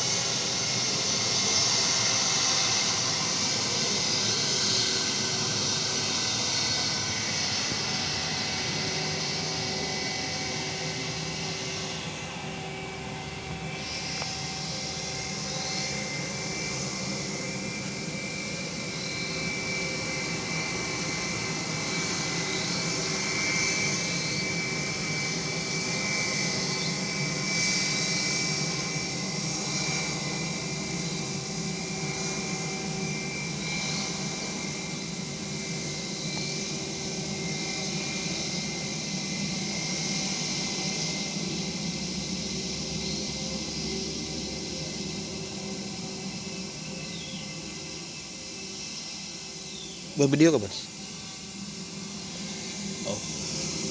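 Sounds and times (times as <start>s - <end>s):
airplane engine flying over: 0.0s - 53.9s.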